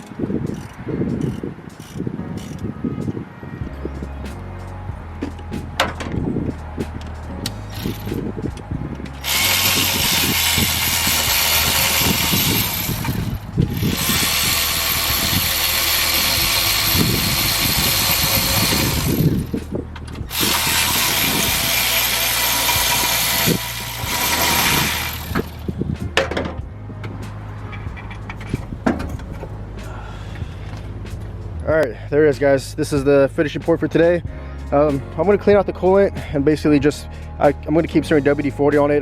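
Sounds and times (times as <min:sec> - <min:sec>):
power tool running: 0:09.2 - 0:19.5, 0:20.3 - 0:25.6.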